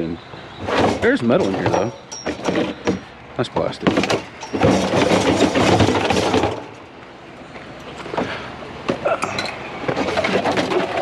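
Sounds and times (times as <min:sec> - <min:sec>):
plastic and metal junk clattering: 0:00.6 - 0:06.8, 0:08.9 - 0:11.0.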